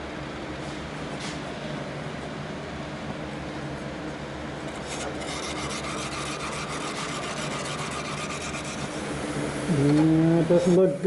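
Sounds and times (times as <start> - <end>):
steady low hum: 0.0 - 11.0
hand tool scraping sheet metal: 4.7 - 9.0.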